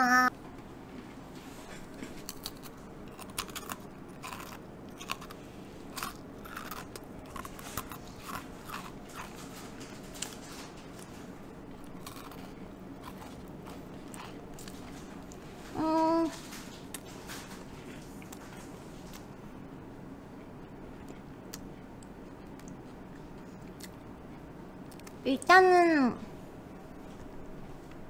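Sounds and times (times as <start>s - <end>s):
crisp crunches of chewing biscuit: 1.8s - 15.5s.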